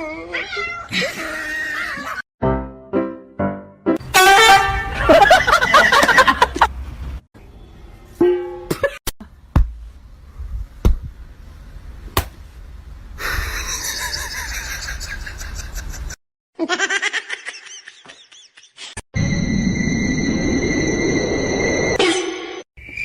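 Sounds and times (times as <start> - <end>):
people laughing: 4.8 - 6.7, 13.3 - 19.0.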